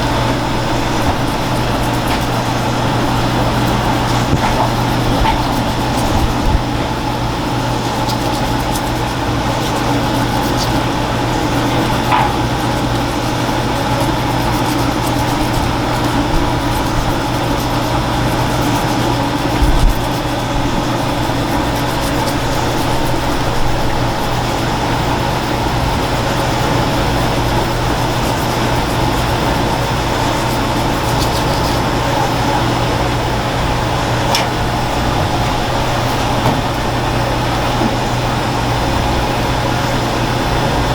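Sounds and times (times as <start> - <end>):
steady mechanical hum: 0.0 - 40.9.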